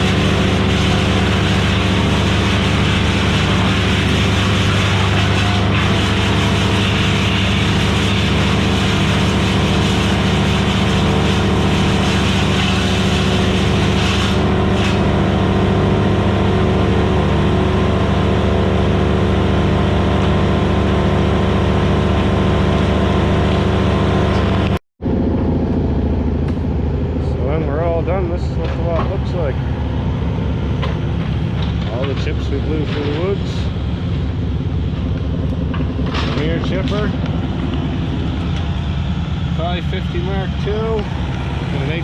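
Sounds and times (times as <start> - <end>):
wood chipper engine droning: 0.0 - 42.0.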